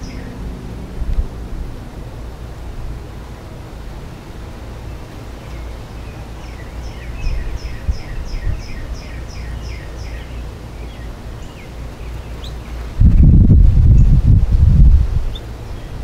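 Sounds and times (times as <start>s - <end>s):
songbird chirping: 0.0s - 1.3s, 3.2s - 12.9s, 15.2s - 16.0s
low background rumble: 0.0s - 16.0s.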